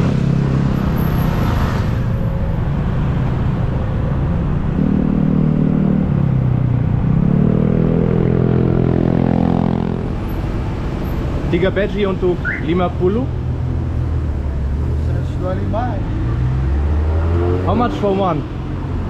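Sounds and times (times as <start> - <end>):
road rumble: 0.0 - 19.0
vehicle engine revving: 4.3 - 19.0.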